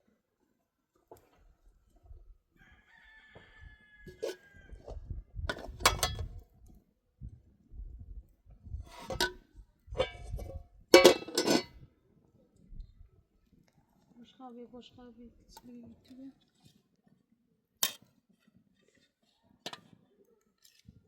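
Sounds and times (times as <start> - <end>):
rooster crowing: 2.6 - 4.8.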